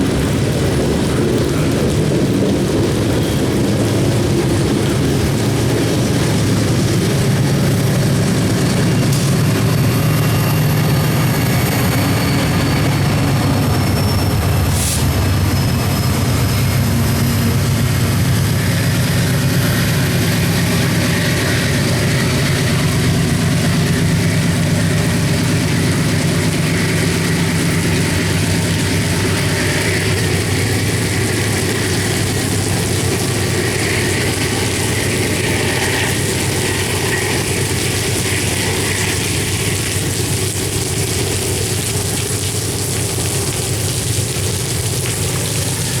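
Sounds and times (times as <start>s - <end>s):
train rolling past rumbling: 0.0s - 46.0s.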